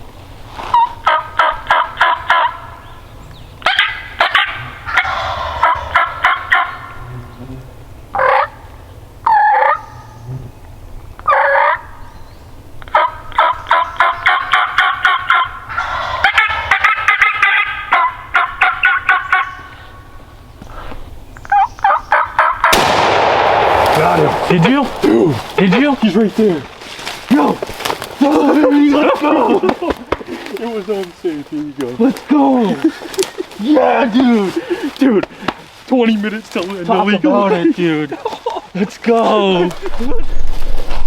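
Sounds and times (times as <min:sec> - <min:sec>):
turkeys yelping: 0:00.7 - 0:02.8, 0:03.6 - 0:07.0, 0:08.1 - 0:10.0, 0:11.2 - 0:12.0, 0:12.8 - 0:20.4, 0:21.5 - 0:23.6
turkey swooping calls: 0:03.6 - 0:07.0, 0:12.9 - 0:20.0.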